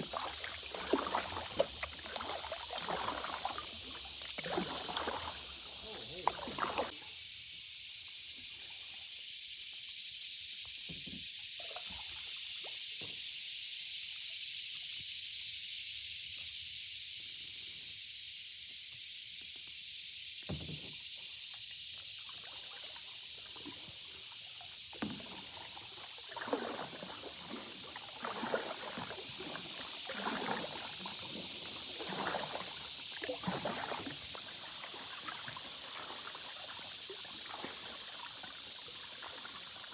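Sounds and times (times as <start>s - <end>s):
paddle strokes splashing water: 0.0s - 7.0s, 22.2s - 39.9s.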